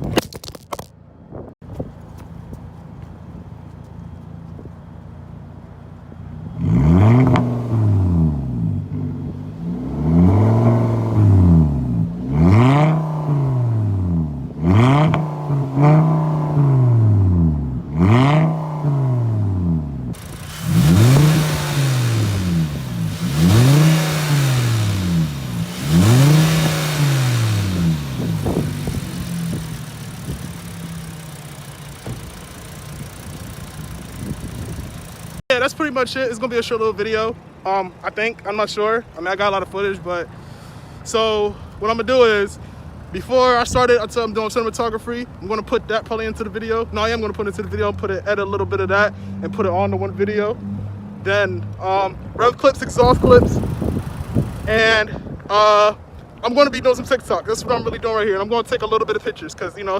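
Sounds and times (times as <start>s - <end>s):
car engine revving: 6.2s - 35.4s, 46.5s - 55.0s.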